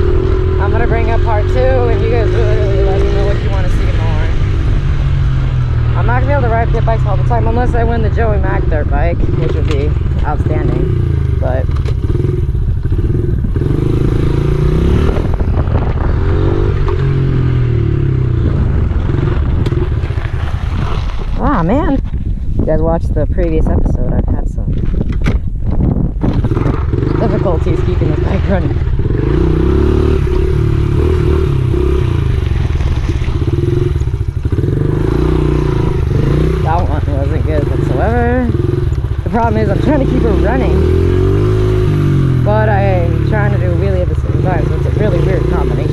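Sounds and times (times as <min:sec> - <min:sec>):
small motorcycle engine revving: 0:00.0 - 0:21.2, 0:26.2 - 0:45.9.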